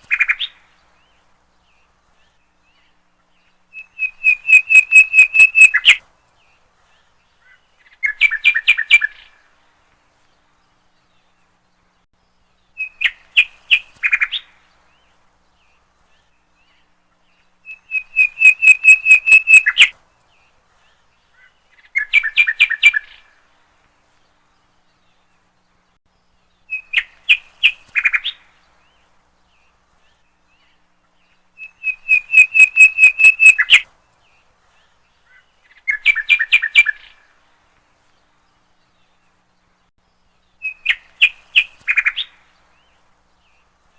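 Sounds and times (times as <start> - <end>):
bird singing high notes: 31.6 - 33.8.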